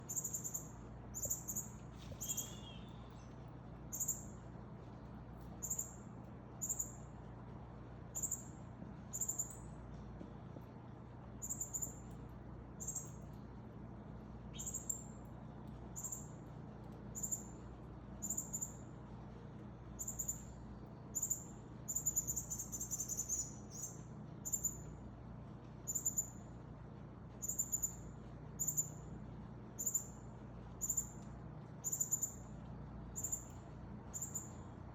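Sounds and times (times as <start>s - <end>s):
faint low hum: 0.0s - 34.9s
cardinal high chip calls: 0.1s - 3.3s.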